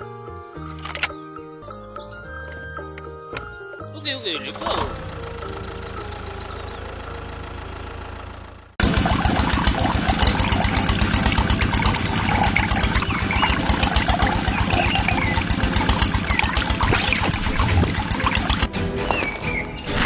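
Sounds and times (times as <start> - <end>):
diesel engine chugging: 4.0 - 19.8.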